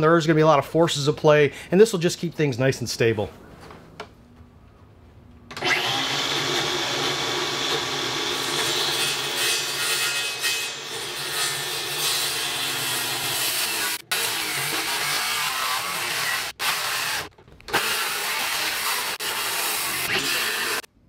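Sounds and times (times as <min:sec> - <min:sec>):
power tool cutting wood: 0:05.6 - 0:20.9.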